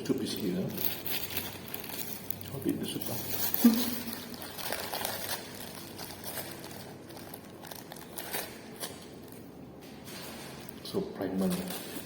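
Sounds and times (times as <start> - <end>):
food packaging crinkling: 0.0 - 9.5.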